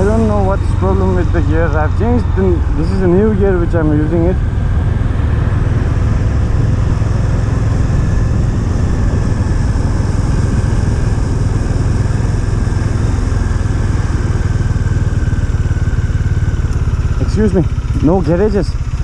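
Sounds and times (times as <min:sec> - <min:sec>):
motorcycle engine running steadily: 0:00.0 - 0:19.0.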